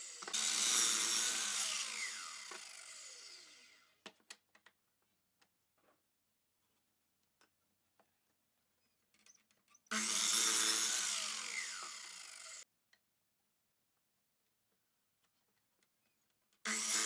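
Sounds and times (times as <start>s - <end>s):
power tool cutting wood: 0.0s - 4.0s, 9.9s - 12.6s, 16.7s - 17.0s.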